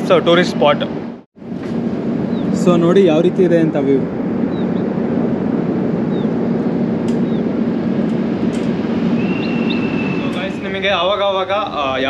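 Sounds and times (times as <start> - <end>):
idling train humming: 0.0 - 12.0
faint high chirps: 9.2 - 10.4.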